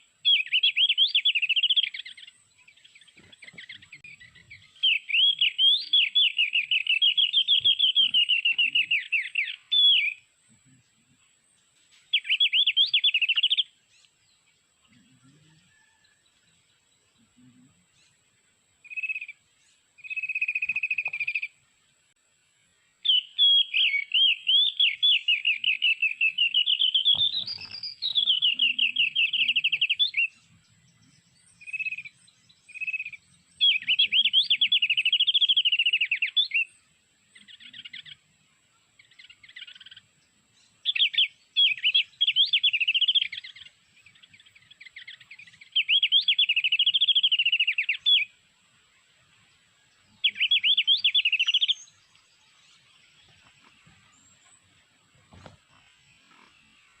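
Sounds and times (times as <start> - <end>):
white-eye bird warbling song: 0.0 - 11.2, 11.9 - 16.1, 16.8 - 21.6, 23.0 - 57.0.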